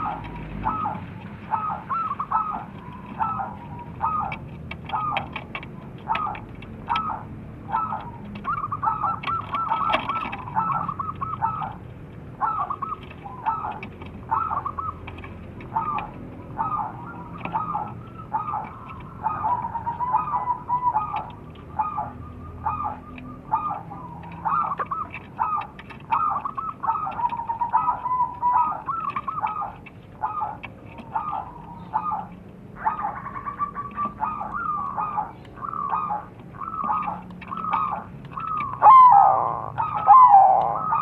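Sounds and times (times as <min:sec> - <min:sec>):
doves cooing: 0:00.0 - 0:41.0
loud bird call with sliding notes: 0:31.2 - 0:41.0.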